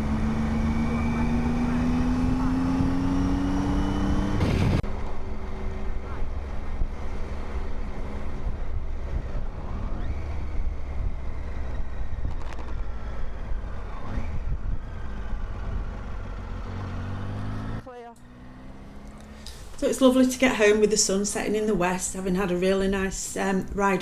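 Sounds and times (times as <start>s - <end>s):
motorcycle engine rumble: 0.0s - 24.0s
short loud engine burst: 4.3s - 4.8s.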